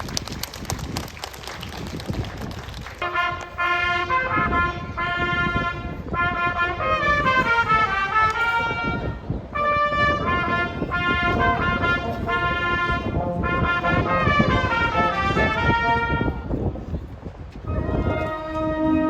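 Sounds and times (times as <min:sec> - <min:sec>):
brass music melody: 0:03.0 - 0:16.6, 0:17.7 - 0:19.0.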